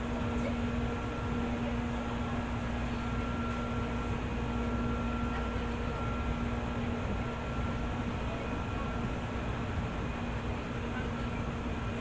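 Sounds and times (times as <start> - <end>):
electric train interior hum: 0.0 - 12.0.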